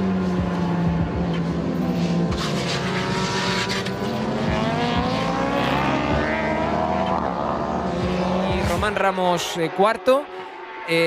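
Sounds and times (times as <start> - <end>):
racing motorcycle engines revving: 0.0 - 11.0.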